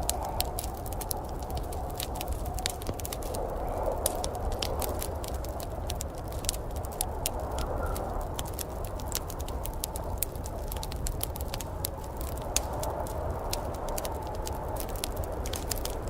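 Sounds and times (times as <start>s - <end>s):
low rushing of fire: 0.0s - 16.0s
wood fire crackling: 0.0s - 16.0s.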